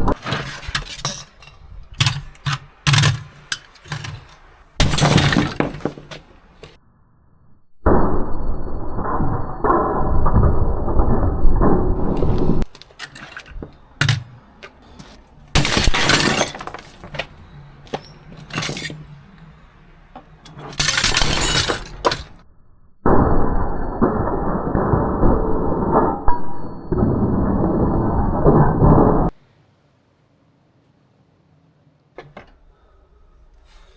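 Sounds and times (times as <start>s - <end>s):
hammer smashing appliance: 0.1s - 6.7s, 12.0s - 22.4s
clattering knocks: 0.1s - 6.8s, 12.0s - 22.4s, 32.2s - 32.7s.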